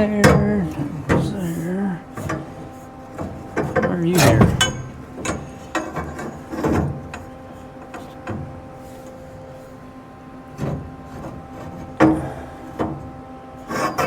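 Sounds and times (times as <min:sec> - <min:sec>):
steady electrical hum: 0:00.0 - 0:14.0
metal parts knocking: 0:04.1 - 0:06.3.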